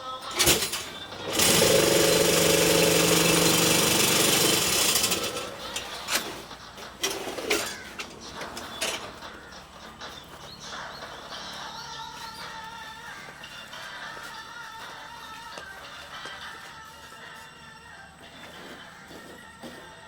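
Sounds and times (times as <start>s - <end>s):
machine humming and hissing: 0.2s - 9.0s.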